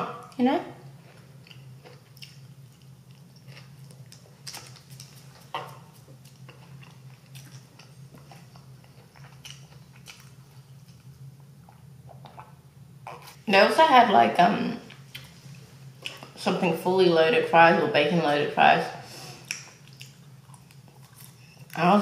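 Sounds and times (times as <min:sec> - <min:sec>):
low steady hum: 0:00.0 - 0:22.0
person chewing with wet smacks: 0:01.0 - 0:13.4, 0:14.9 - 0:15.4, 0:16.0 - 0:16.4, 0:19.4 - 0:21.8.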